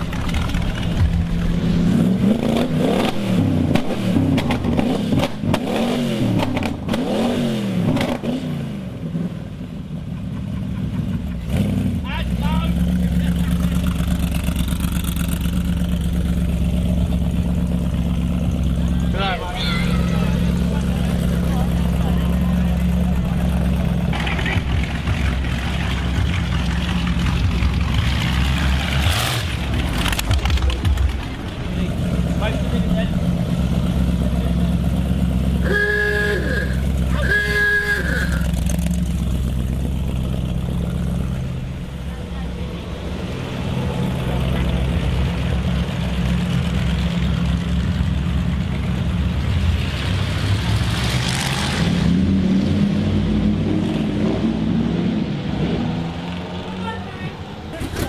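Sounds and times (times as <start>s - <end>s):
car engine running steadily: 0.0s - 51.0s
car horn blasts: 35.6s - 38.6s.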